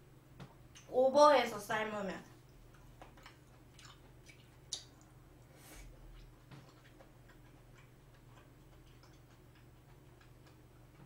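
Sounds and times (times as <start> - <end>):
chewing with wet mouth clicks: 2.4 - 11.0.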